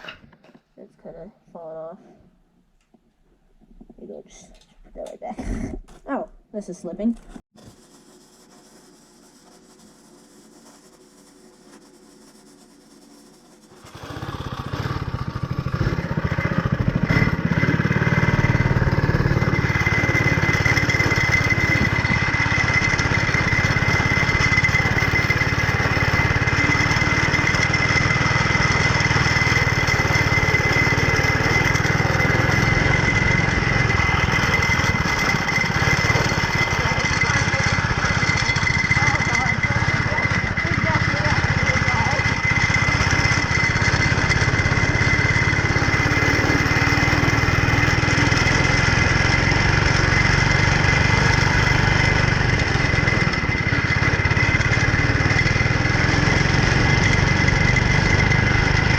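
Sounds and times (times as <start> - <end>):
go-kart engine running: 13.1 - 58.9
steady high whine: 16.6 - 58.9.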